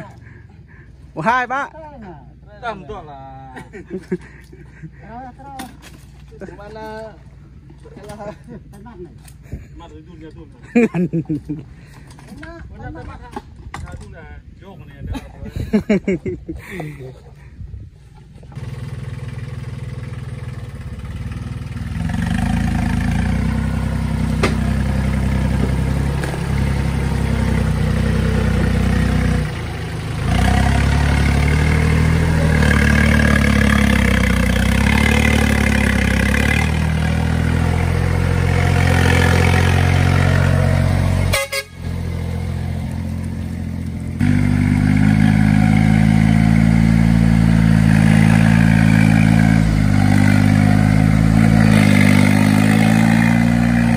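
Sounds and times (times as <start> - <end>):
tractor engine running: 18.1 - 53.9.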